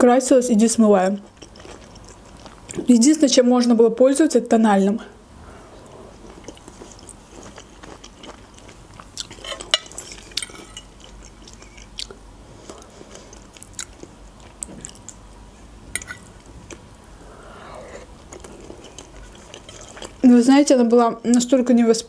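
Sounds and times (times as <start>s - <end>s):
chewing and mouth sounds: 1.0s - 2.9s, 5.8s - 15.2s, 17.8s - 20.2s.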